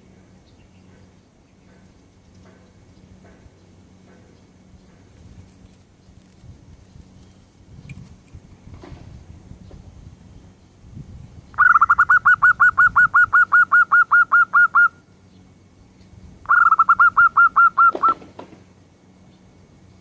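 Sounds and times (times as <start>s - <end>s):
bird calling sharp repeated notes: 11.5s - 15.1s, 16.4s - 18.3s.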